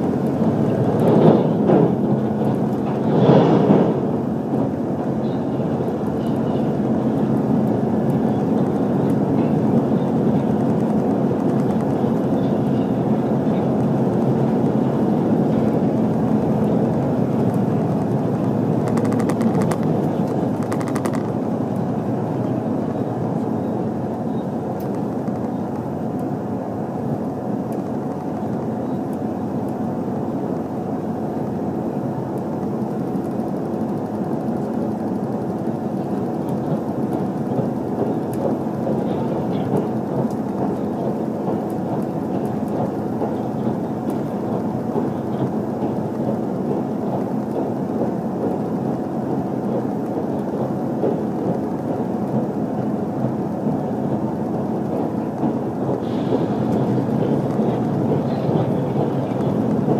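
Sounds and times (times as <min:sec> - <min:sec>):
train wheels rumbling on track: 0:00.0 - 0:59.9
sharp rapid ticks: 0:16.1 - 0:21.4.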